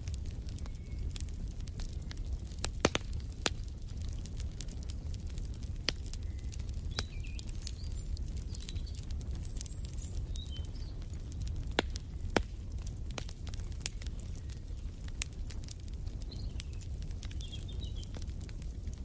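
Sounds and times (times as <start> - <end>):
wood fire crackling: 0.0 - 19.0
faint bird chirps: 6.2 - 11.0.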